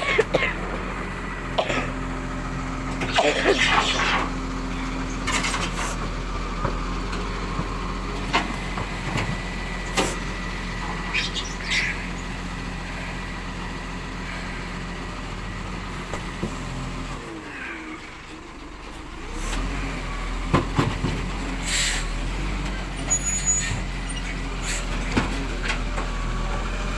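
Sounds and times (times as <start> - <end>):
diesel engine running: 0.0 - 26.9
air brake hiss: 21.6 - 22.2, 24.6 - 25.0.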